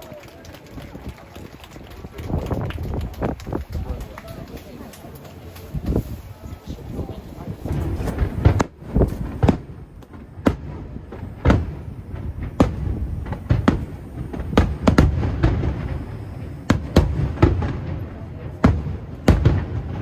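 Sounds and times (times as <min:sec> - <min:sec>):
firework shells booming: 0:07.3 - 0:20.0.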